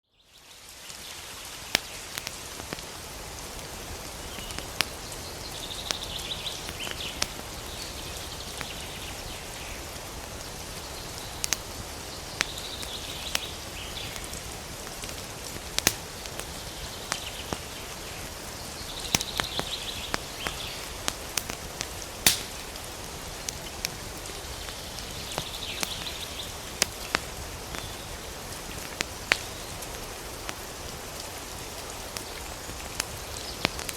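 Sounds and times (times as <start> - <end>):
steady hiss: 0.2 - 33.9
campfire crackling and popping: 0.6 - 33.9.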